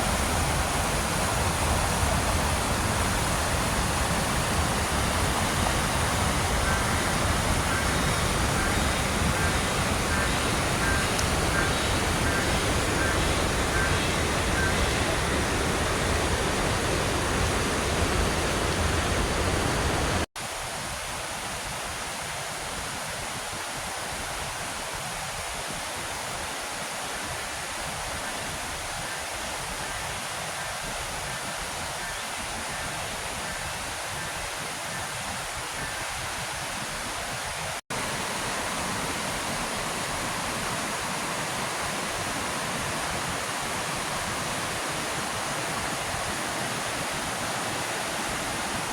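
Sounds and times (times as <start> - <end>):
waterfall rushing: 0.0 - 20.6, 37.9 - 48.9.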